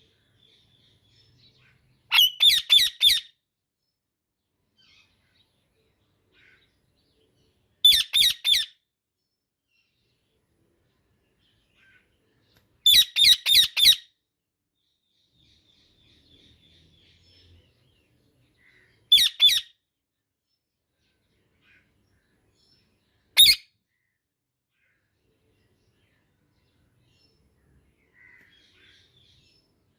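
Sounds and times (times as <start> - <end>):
parakeet calling: 2.1 - 3.3, 7.8 - 8.7, 12.8 - 14.1, 18.7 - 19.7, 23.4 - 23.6.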